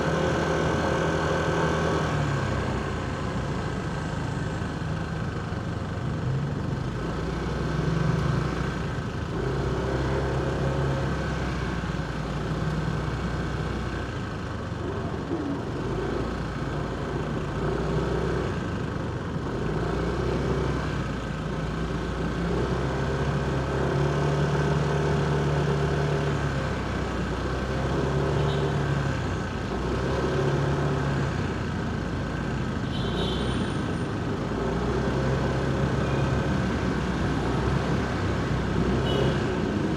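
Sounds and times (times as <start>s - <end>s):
traffic hum: 5.8s - 39.9s.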